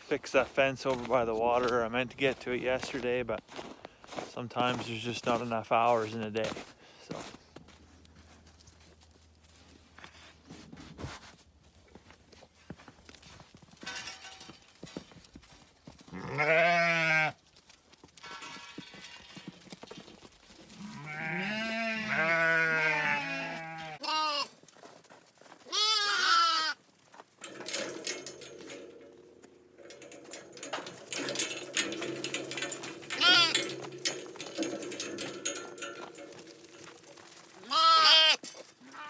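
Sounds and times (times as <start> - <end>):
ewes bleating: 20.9 - 24.5, 25.7 - 26.8, 37.6 - 39.0.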